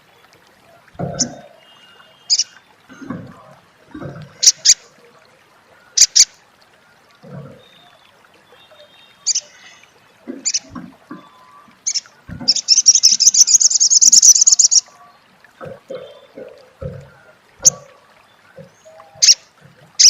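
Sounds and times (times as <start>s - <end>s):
sunbird chattering call: 2.3s - 2.5s, 11.9s - 14.8s, 18.9s - 19.4s.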